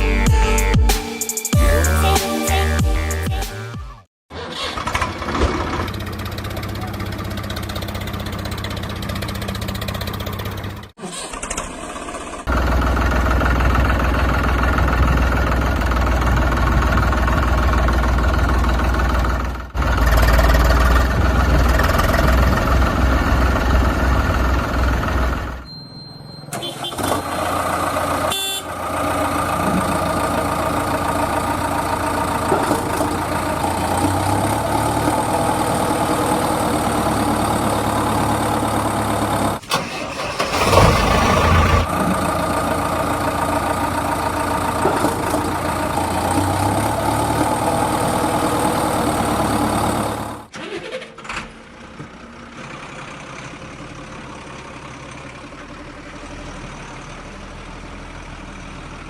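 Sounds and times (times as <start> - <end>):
heavy diesel engine running: 4.5 - 50.5, 51.6 - 59.0
quieter engine idling: 5.7 - 10.9, 12.2 - 25.6, 27.4 - 50.5.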